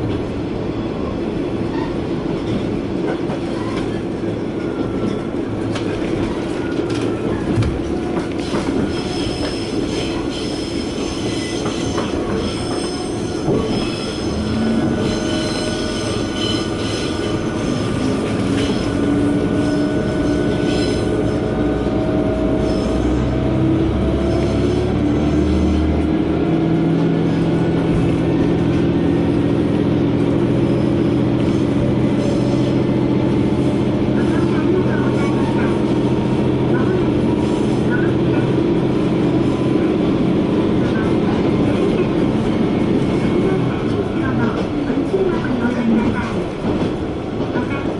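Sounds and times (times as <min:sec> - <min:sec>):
railcar diesel engine droning: 0:00.0 - 0:47.9
wheels squealing against rails: 0:01.6 - 0:02.2, 0:06.4 - 0:25.9.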